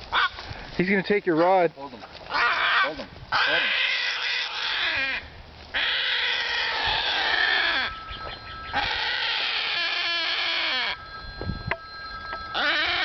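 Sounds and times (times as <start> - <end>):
bird harsh distress calls: 0.1 - 0.4, 2.3 - 11.4, 12.4 - 13.0.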